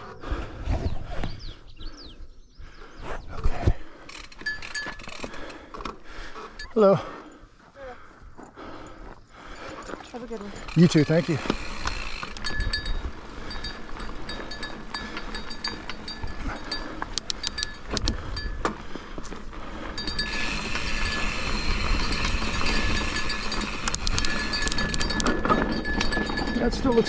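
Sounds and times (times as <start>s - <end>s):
wind on microphone: 0.3s - 1.6s
bike chain and frame rattling: 4.0s - 7.0s, 9.4s - 27.0s
bike tyre rumble on dirt: 10.0s - 27.0s.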